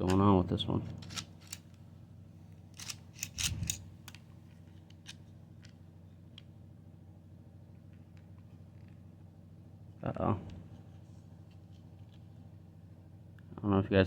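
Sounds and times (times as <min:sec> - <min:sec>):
small plastic clicks and scrapes: 0:02.8 - 0:05.8.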